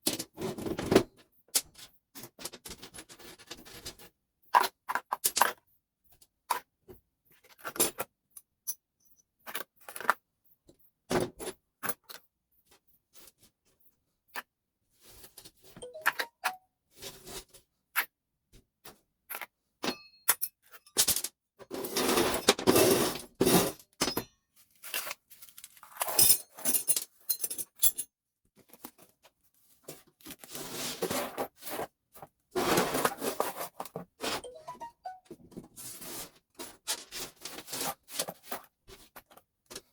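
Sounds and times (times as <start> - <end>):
scraping or rubbing: 30.4 - 32.0, 32.6 - 34.5, 35.8 - 38.5.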